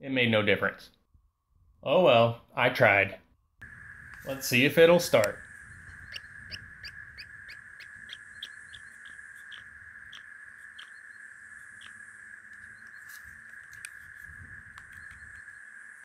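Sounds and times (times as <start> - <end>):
bird chirping: 3.6 - 16.0
steady high-pitched hum: 3.6 - 16.0.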